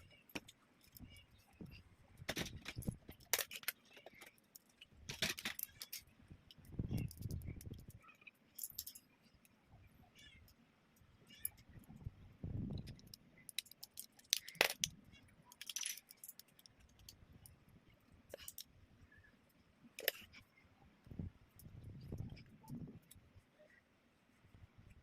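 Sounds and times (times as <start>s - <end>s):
plastic bricks clicking and clattering: 0.0s - 8.0s, 12.7s - 17.3s, 18.3s - 18.7s, 20.0s - 20.4s.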